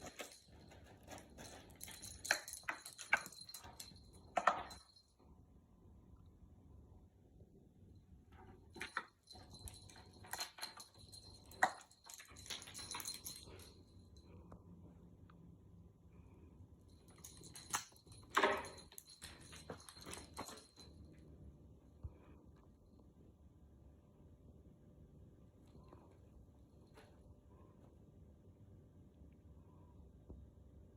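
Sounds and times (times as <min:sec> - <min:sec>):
cat toy clattering and rattling: 0:00.0 - 0:05.0, 0:08.4 - 0:13.8, 0:17.0 - 0:21.1.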